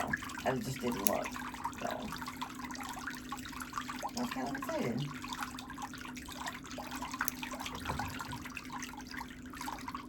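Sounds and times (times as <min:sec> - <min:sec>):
water drips: 0:00.0 - 0:10.0
water trickling and splashing: 0:00.0 - 0:10.0.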